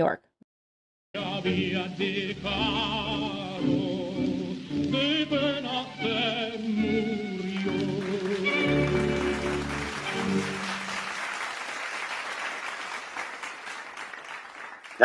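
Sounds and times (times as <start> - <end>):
audience applause: 6.8 - 15.0.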